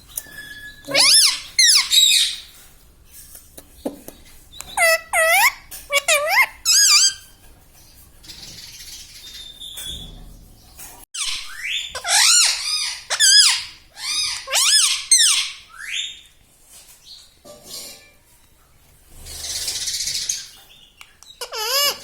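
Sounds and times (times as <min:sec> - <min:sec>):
parrot squawking: 0:00.6 - 0:02.5, 0:04.7 - 0:07.3, 0:11.2 - 0:16.1, 0:21.4 - 0:22.0.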